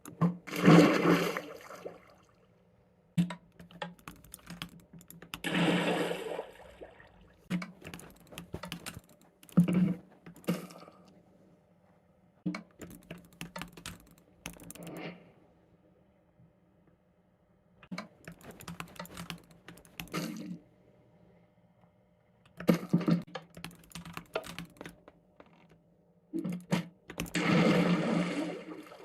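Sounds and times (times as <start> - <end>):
sharp typing clicks: 3.2 - 6.1, 7.5 - 10.7, 12.7 - 15.1, 17.9 - 20.4, 22.5 - 25.0, 27.1 - 27.6.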